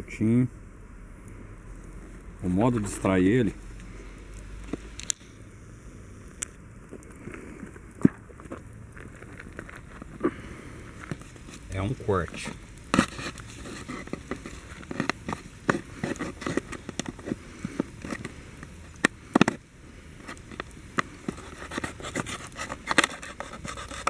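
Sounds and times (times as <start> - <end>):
plastic scraping and clicking: 6.3 - 19.6, 20.2 - 24.0
plastic bottle being cut: 12.3 - 19.6, 20.3 - 24.0.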